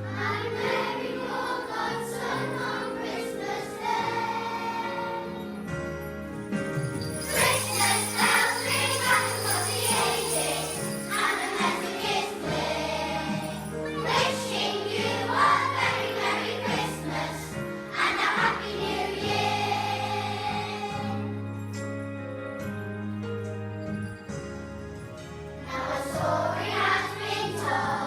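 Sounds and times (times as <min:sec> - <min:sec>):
children's choir singing: 0:00.0 - 0:05.6, 0:07.2 - 0:21.4, 0:25.6 - 0:28.0
children's choir singing a christmas song: 0:00.0 - 0:05.8, 0:07.0 - 0:21.8, 0:25.6 - 0:28.0
instrumental accompaniment: 0:03.4 - 0:28.0.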